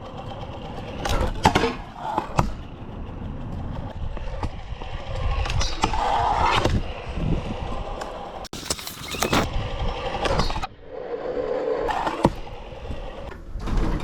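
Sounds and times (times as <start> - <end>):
scooter wheels rolling: 8.5 - 9.5.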